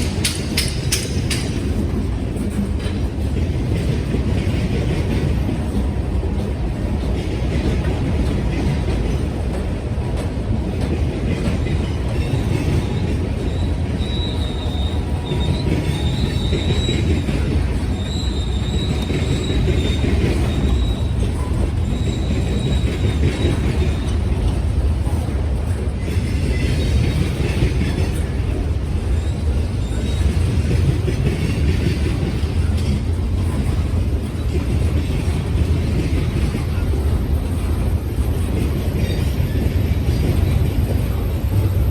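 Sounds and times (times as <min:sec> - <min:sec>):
freight train wheels rumbling: 0:00.0 - 0:41.9
wheel squeal: 0:12.2 - 0:24.2, 0:29.0 - 0:30.7.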